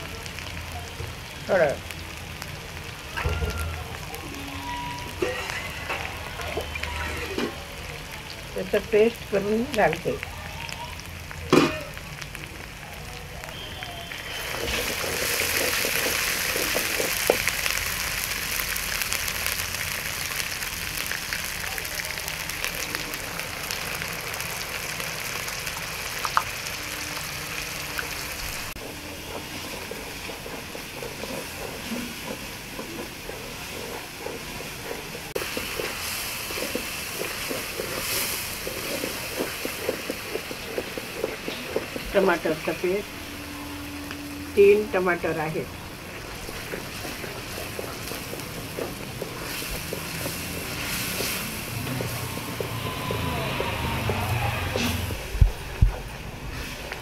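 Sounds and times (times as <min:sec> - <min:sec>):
onion paste sizzling in oil: 0:00.0 - 0:57.0
wooden spoon scraping a pan: 0:14.3 - 0:17.5, 0:27.8 - 0:44.8, 0:46.0 - 0:57.0.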